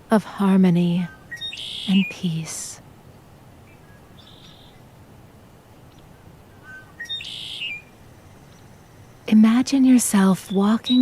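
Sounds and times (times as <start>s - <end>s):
faint forest background: 0.0s - 11.0s
birds calling: 1.0s - 2.4s, 3.6s - 4.8s, 5.8s - 9.2s.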